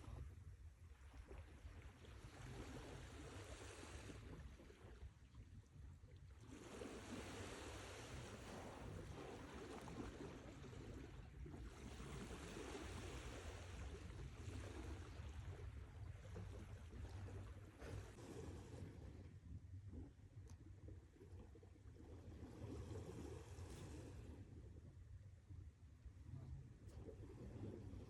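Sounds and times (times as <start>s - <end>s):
sea waves breaking: 6.5s - 15.5s.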